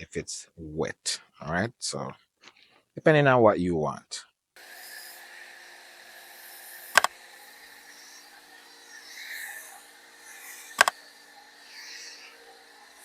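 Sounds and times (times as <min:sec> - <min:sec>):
steady low hum: 0:04.8 - 0:13.0
sharp clicks: 0:07.0 - 0:07.2, 0:10.8 - 0:11.0.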